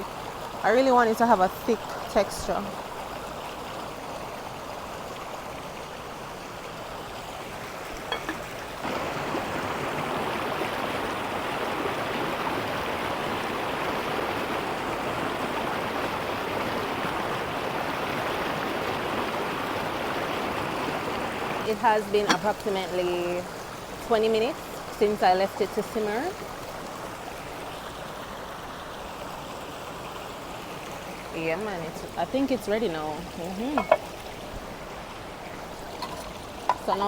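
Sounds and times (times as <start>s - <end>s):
river water rushing: 2.5s - 25.0s, 26.3s - 37.0s.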